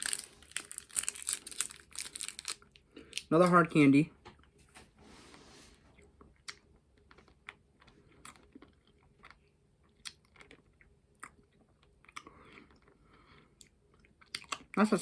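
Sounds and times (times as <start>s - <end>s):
candy clicking against teeth: 0.0s - 3.3s, 14.3s - 14.7s.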